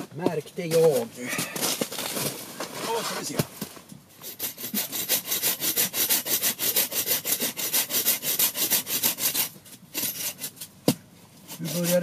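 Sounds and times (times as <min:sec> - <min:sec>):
hand saw cutting wood: 0:04.2 - 0:10.6, 0:11.5 - 0:12.0.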